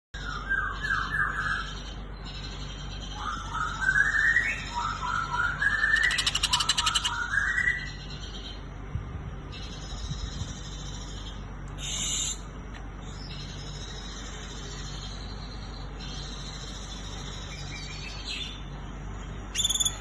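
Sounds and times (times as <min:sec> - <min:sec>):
bird buzzy rattle: 0:05.9 - 0:07.1.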